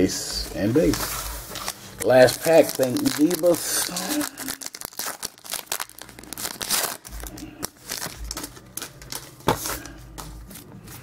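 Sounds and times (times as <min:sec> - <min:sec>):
wrapper tearing and crinkling: 0:00.8 - 0:09.4.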